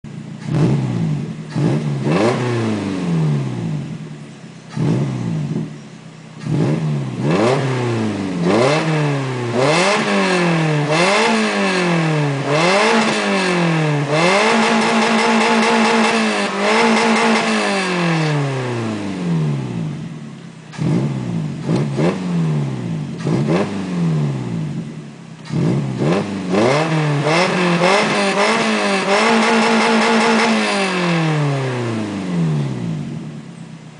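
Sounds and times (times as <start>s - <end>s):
car engine revving: 0.1s - 33.9s.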